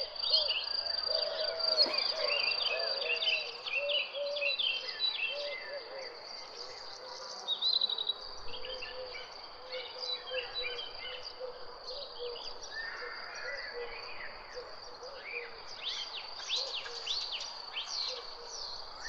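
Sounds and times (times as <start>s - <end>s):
birds chirping: 0.0s - 4.2s.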